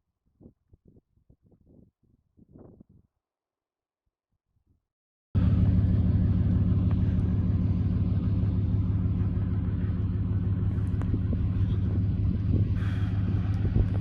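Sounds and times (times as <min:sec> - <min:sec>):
truck engine idling: 0:05.4 - 0:14.0.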